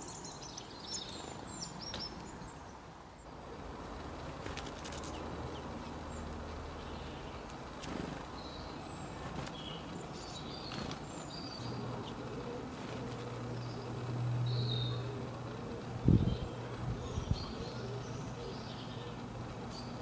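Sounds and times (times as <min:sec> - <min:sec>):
bird chirps: 0:08.4 - 0:20.0.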